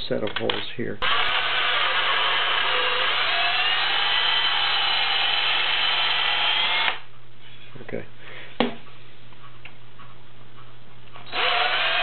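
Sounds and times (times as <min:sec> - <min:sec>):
cordless drill whirring: 0:01.0 - 0:07.0, 0:11.2 - 0:12.0.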